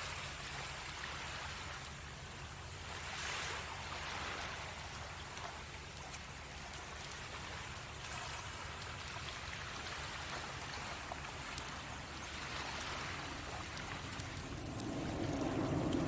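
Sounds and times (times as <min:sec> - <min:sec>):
sea waves washing on beach: 0:00.0 - 0:16.0
campfire popping: 0:01.7 - 0:16.0.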